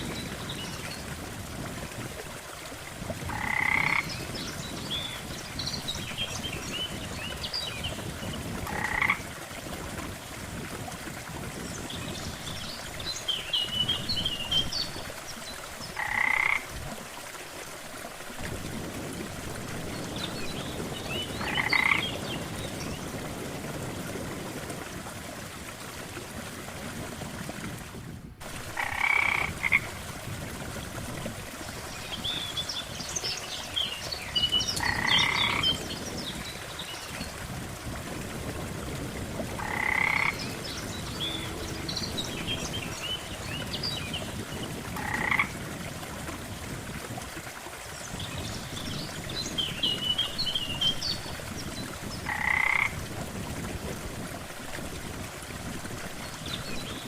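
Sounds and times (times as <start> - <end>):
water washing: 0.0 - 57.0
frog croaking loudly: 3.3 - 4.1, 8.7 - 9.2, 16.0 - 16.6, 39.6 - 40.3, 45.0 - 45.5, 52.3 - 52.9
high chirping frog calls: 3.3 - 4.1, 16.0 - 16.6, 21.4 - 22.2, 34.8 - 35.7, 39.6 - 41.8, 45.0 - 45.5, 52.3 - 52.9.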